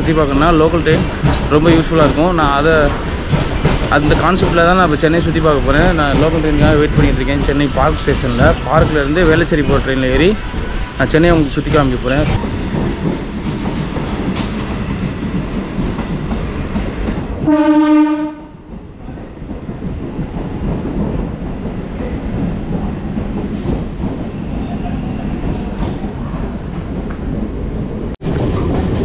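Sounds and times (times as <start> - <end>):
train rumbling on rails: 0.0 - 29.0
train horn blast: 17.4 - 18.6.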